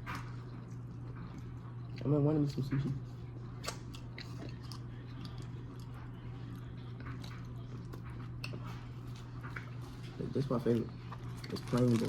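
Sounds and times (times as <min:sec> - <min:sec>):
person chewing: 0:03.5 - 0:10.0.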